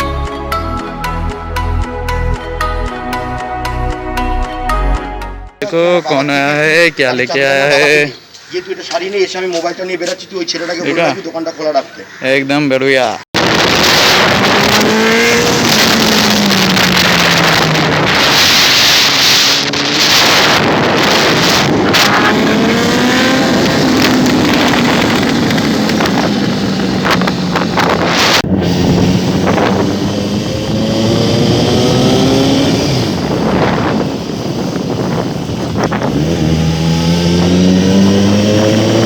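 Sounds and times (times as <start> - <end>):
motorcycle engine revving: 13.4 - 39.0.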